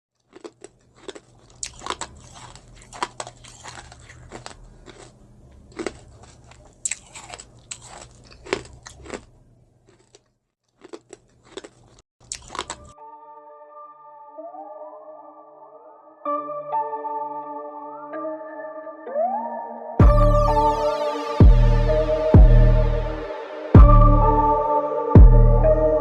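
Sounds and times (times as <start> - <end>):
crisp crunching and chewing: 0.2 - 13.0.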